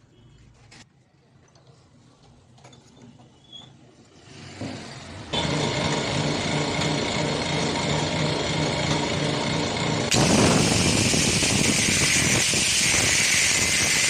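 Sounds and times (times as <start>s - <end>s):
power tool running: 5.3s - 14.0s.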